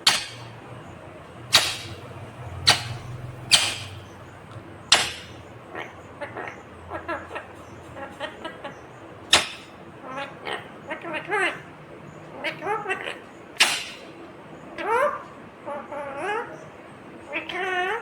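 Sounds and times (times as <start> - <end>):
parakeet chattering calls: 0.0 - 18.0
parakeet shrill screeches: 13.6 - 14.1.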